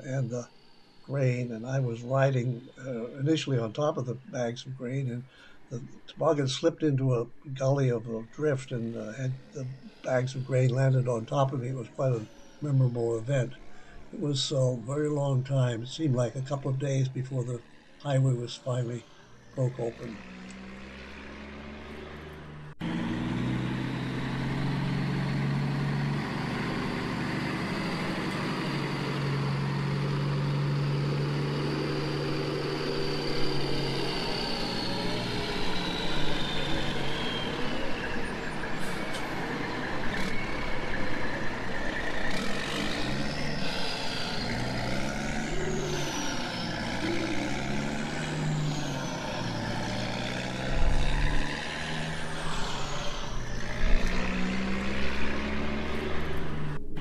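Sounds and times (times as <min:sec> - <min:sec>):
whine rising and falling: 0:00.0 - 0:57.0
truck engine running: 0:07.6 - 0:57.0.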